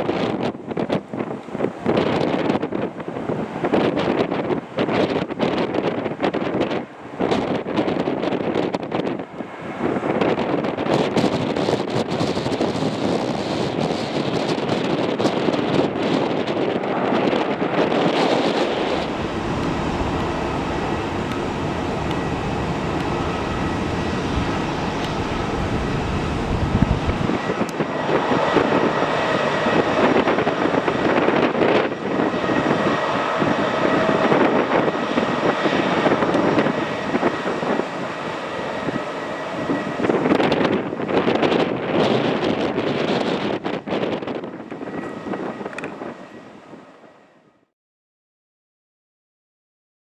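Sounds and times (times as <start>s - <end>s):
wind buffeting microphone: 0.0s - 47.1s
jet engines running: 18.3s - 42.6s.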